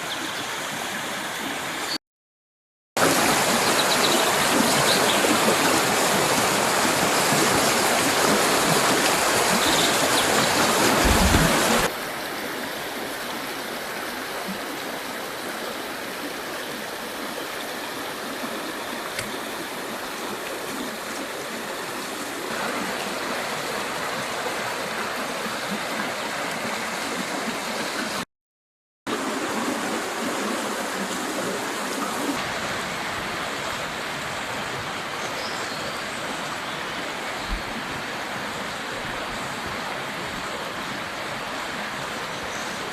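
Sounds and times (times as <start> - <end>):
river water rushing over rocks: 3.0 - 28.2.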